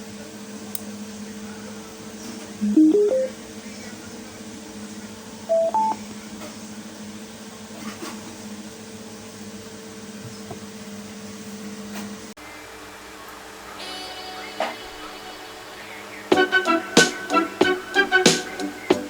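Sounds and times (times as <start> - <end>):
two-note rising chime: 2.6 - 3.3
short electronic tones: 2.6 - 3.4, 5.5 - 6.0.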